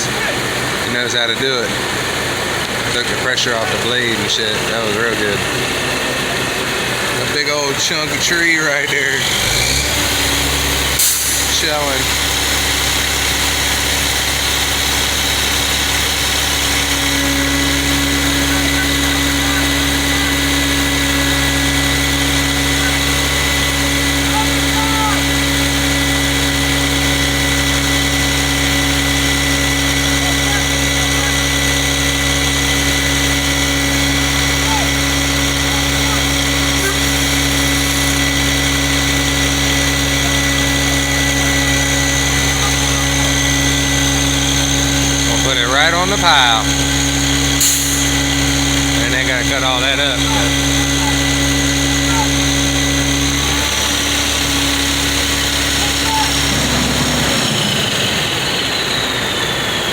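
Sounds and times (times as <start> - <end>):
crane engine running: 0.0 - 59.9
steady tone: 16.7 - 59.4.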